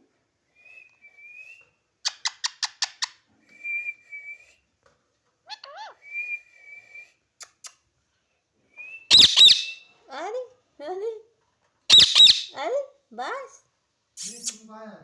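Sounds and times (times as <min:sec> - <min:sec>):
parrot chirps: 0:02.0 - 0:03.2, 0:05.5 - 0:06.1, 0:09.1 - 0:09.9, 0:11.9 - 0:12.6, 0:14.2 - 0:14.6
parrot whistles: 0:08.8 - 0:09.9, 0:11.9 - 0:12.5
parrot squawk: 0:09.1 - 0:09.8, 0:11.9 - 0:12.6.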